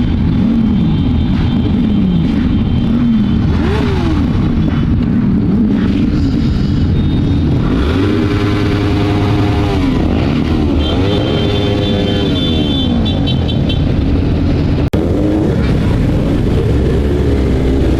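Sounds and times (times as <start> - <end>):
motorcycle engines running: 0.0 - 17.9
loud engine revving: 2.2 - 6.6, 7.4 - 13.3, 14.8 - 17.9.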